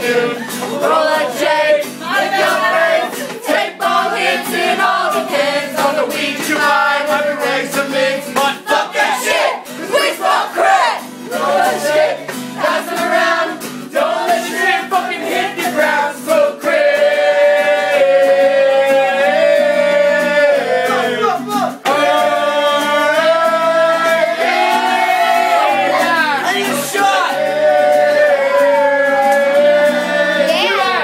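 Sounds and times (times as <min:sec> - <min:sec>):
people howling together: 0:17.0 - 0:21.3, 0:21.9 - 0:31.0.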